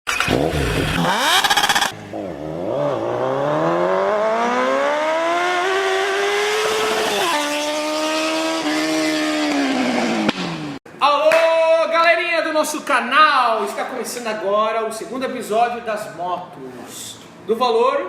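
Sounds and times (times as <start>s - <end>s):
motorcycle engine accelerating: 0.1s - 10.8s.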